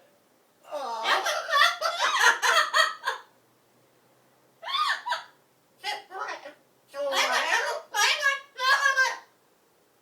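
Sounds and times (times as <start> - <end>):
parrots squawking and chattering: 4.6 - 6.4, 7.0 - 9.3.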